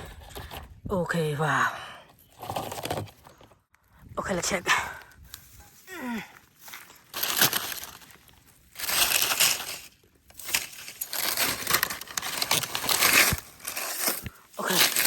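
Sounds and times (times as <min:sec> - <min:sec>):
leaf litter rustling and crunching: 0:06.6 - 0:15.0.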